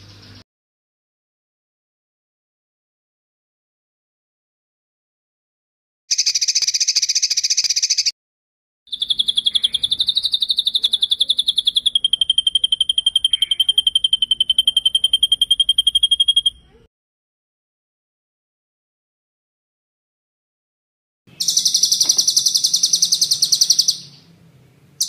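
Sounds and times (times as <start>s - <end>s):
songbird trilling: 6.1s - 8.1s, 8.9s - 16.8s, 21.3s - 24.4s.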